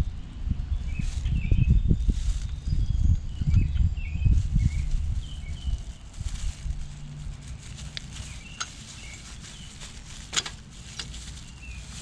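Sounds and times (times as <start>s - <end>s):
small metal parts clicking: 10.2s - 11.3s.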